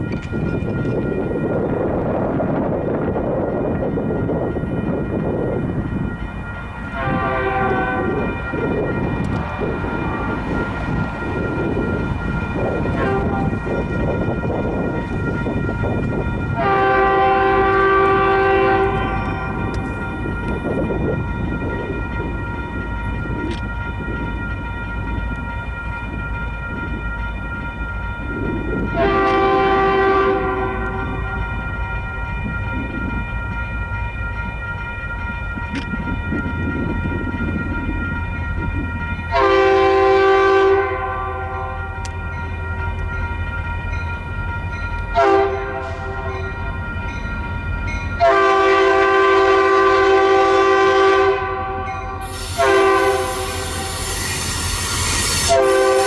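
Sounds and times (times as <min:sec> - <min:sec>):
moving train rumble: 0:00.0 - 0:56.0
locomotive air horn: 0:06.9 - 0:11.0, 0:12.6 - 0:13.8, 0:16.6 - 0:20.0, 0:28.9 - 0:31.6, 0:39.3 - 0:42.0, 0:45.1 - 0:46.6, 0:48.2 - 0:56.0
high-pitched ringing: 0:52.2 - 0:56.0.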